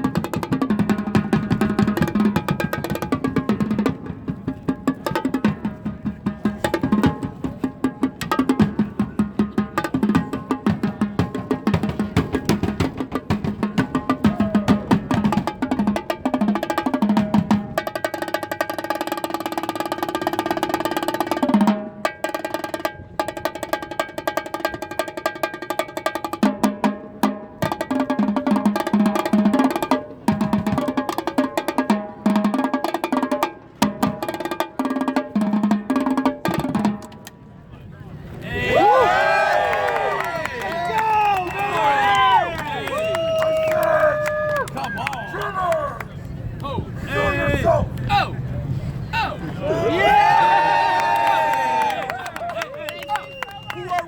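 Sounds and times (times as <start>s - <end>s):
fast drumming: 0.0s - 37.1s.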